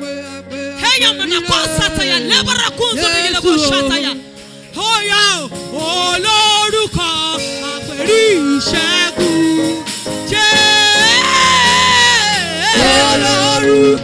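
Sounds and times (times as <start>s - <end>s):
solo voice singing: 10.5s - 14.0s
sustained accompaniment chords: 12.3s - 14.0s.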